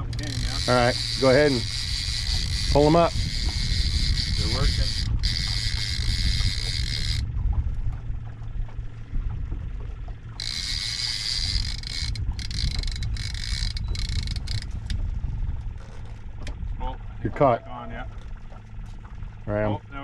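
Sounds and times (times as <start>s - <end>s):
fishing reel buzzing: 0.0s - 7.3s, 10.3s - 15.0s
reel clicks: 0.0s - 8.8s, 10.3s - 15.0s, 15.6s - 16.6s
low rumble: 0.0s - 19.9s.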